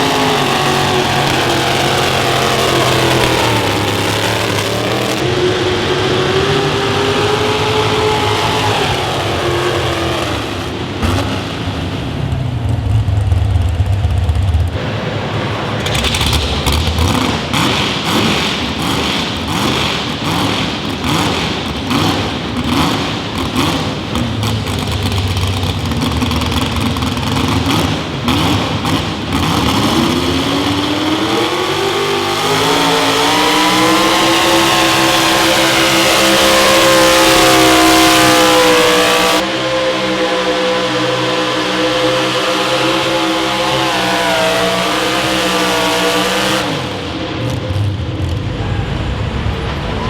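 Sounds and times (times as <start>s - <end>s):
engine cracks: 0.0s - 5.3s, 7.2s - 39.5s
engine running rough and revving: 0.0s - 50.0s.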